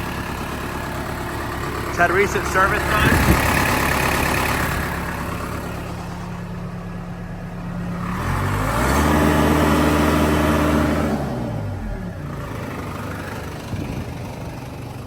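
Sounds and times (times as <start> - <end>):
diesel engine idling and revving: 0.0 - 15.0.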